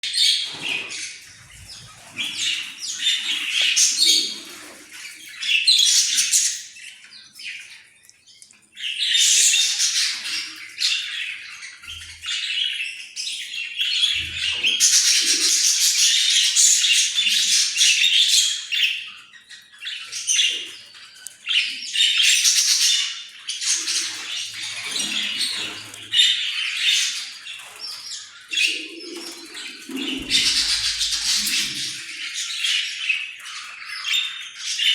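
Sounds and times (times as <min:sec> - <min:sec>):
parrots chattering and squawking: 0:22.2 - 0:34.9.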